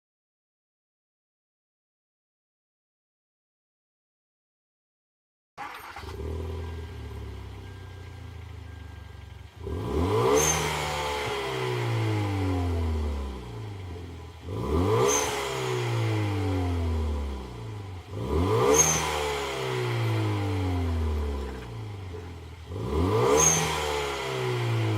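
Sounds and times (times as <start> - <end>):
car engine idling and revving: 5.6 - 24.9.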